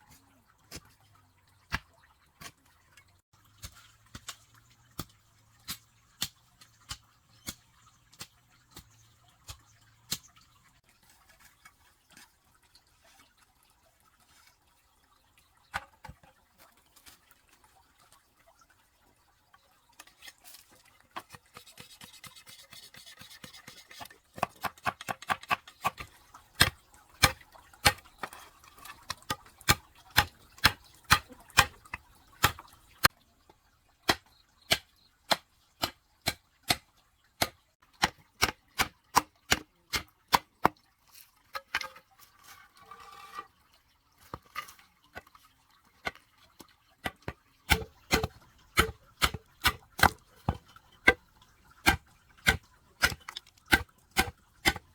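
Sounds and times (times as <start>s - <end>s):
hand tool striking wood: 24.4s - 28.4s, 32.4s - 32.6s, 47.7s - 51.2s, 51.9s - 54.9s.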